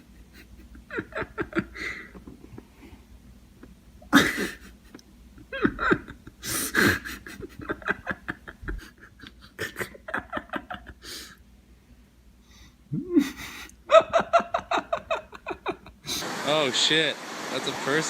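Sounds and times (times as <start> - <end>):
person laughing: 0.0 - 2.7, 3.6 - 11.4, 12.9 - 16.2
heavy panting breaths: 11.0 - 11.4.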